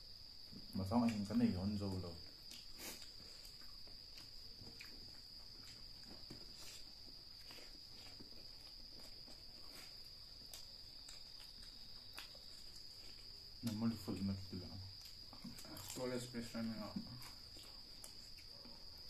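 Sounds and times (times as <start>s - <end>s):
cricket trill: 0.0s - 19.0s
mouth chewing sounds: 2.4s - 13.8s.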